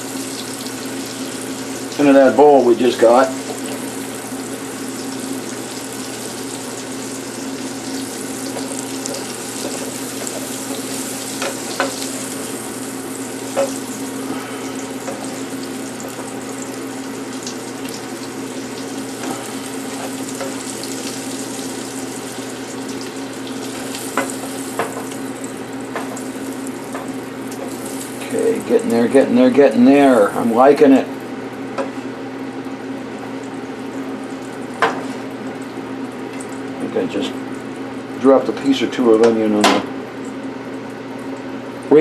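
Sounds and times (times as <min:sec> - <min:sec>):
onions sizzling in a pan: 0:00.0 - 0:29.1.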